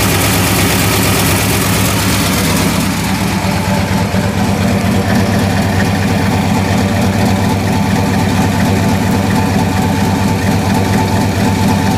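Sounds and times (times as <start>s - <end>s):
car engine idling: 0.0s - 11.9s.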